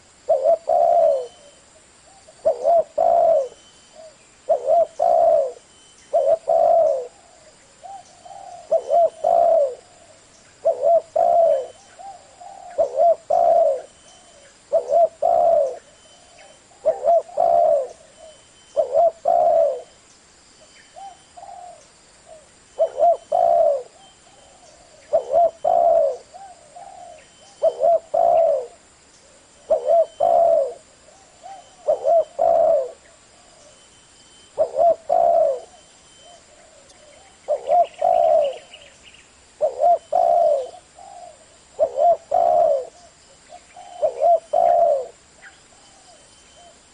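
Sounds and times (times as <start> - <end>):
dove cooing: 0.0 - 19.9, 20.9 - 33.9, 34.5 - 39.0, 39.6 - 46.9.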